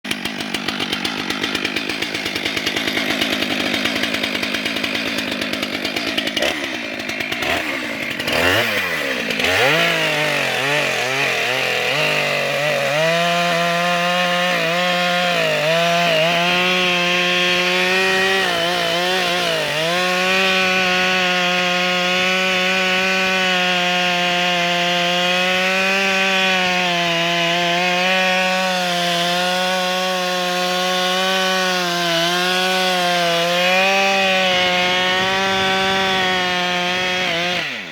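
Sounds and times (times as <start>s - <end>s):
chainsaw cutting log: 0.0s - 37.9s.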